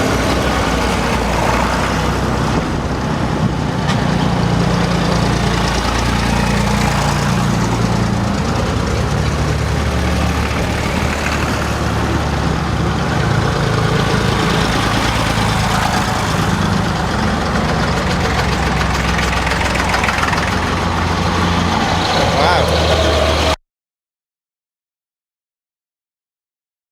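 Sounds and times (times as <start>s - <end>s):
tractor engines idling: 0.0s - 23.6s.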